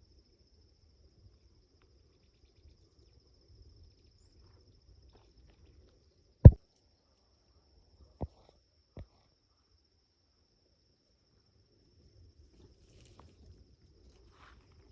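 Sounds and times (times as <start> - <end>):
cricket trilling: 0.0 - 10.0.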